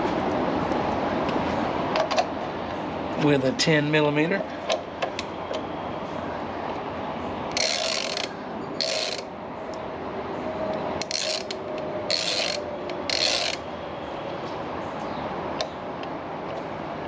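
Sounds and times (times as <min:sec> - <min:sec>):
hand ratchet clicking: 0:07.5 - 0:09.3, 0:11.0 - 0:13.6.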